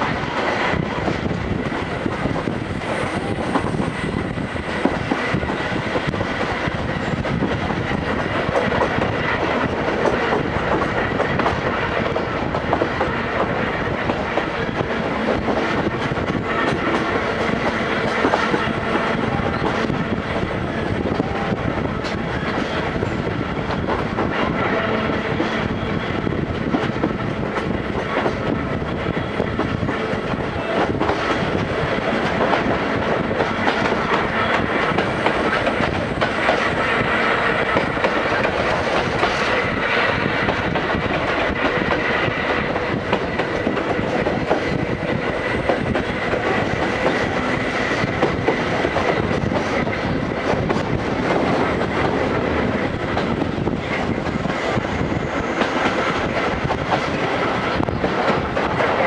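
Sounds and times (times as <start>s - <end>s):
steel wheels clacking over rail joints: 0.0s - 59.0s
train coach rumble and rattle: 0.0s - 59.0s.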